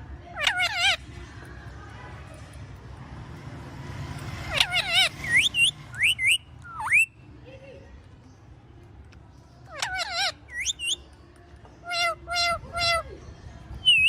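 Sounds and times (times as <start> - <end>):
parakeet calling: 0.3 - 1.1, 4.2 - 7.2, 9.6 - 11.0, 11.8 - 13.1, 13.7 - 14.0
parakeet upward-sweeping whistles: 4.8 - 7.2, 10.1 - 11.0.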